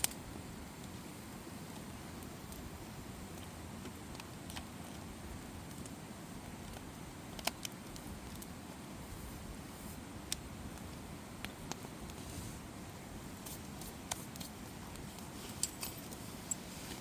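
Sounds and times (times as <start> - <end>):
campfire crackling and popping: 0.0 - 8.8, 9.5 - 12.2, 12.9 - 15.3.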